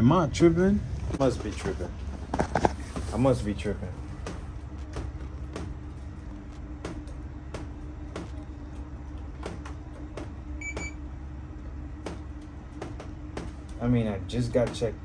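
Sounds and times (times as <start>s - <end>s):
steady low hum: 0.0s - 15.0s
key-card lock beep: 10.6s - 11.0s.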